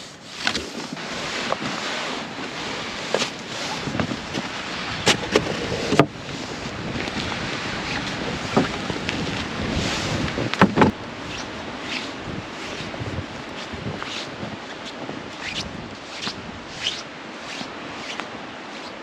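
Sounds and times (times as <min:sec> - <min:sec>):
rushing wind: 0:00.0 - 0:19.0.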